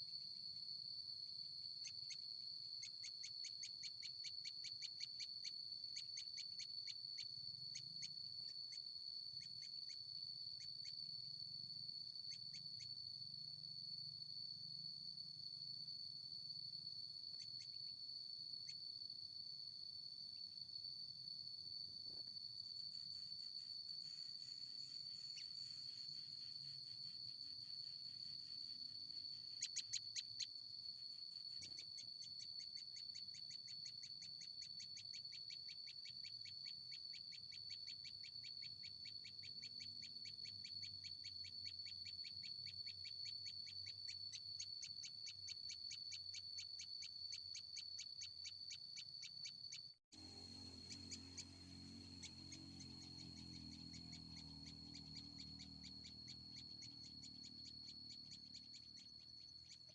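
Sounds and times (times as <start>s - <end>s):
pulsing insect trill: 0.0s - 59.9s
short insect chirps: 0.0s - 59.9s.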